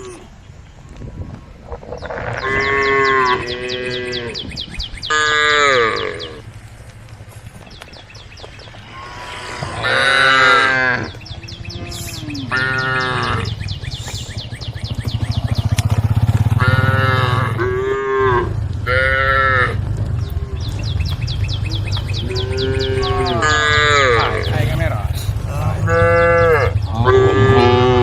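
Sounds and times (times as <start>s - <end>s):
cows mooing: 1.9s - 6.4s, 8.7s - 14.2s, 15.0s - 28.0s
low rumble: 5.9s - 28.0s.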